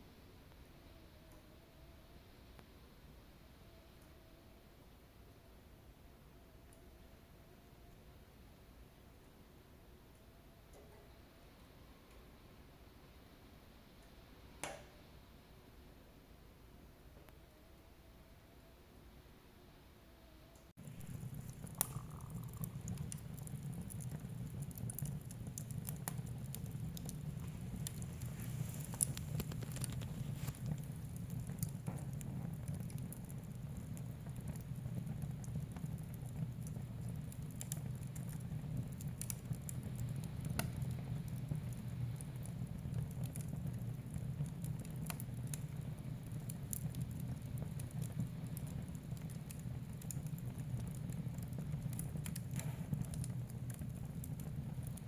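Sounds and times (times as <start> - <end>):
fire crackling and popping: 20.8 - 55.0
low rush of flames: 20.8 - 55.0.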